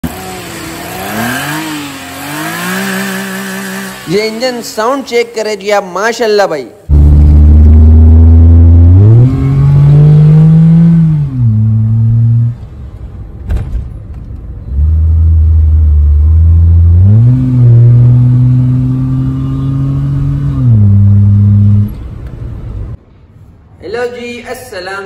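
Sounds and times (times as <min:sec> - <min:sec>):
car engine revving: 0:00.0 - 0:04.1, 0:06.9 - 0:12.9, 0:14.7 - 0:23.0.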